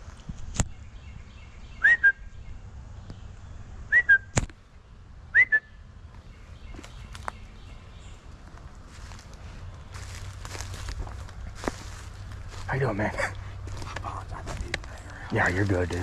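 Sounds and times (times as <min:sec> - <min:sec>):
loud whistled calls: 0:01.8 - 0:02.3, 0:03.9 - 0:04.3, 0:05.3 - 0:05.8.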